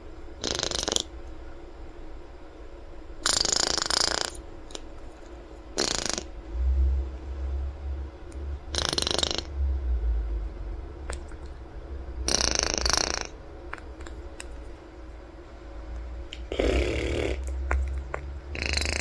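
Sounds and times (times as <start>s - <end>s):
low rumble: 6.3s - 16.7s.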